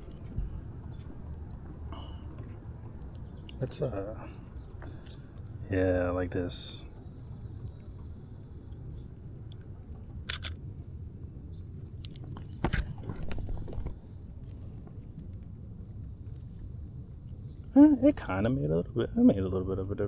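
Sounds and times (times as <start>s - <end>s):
insects chirring: 0.0s - 20.0s
sharp clicks: 9.5s - 10.6s
knocks and bumps: 12.4s - 13.9s.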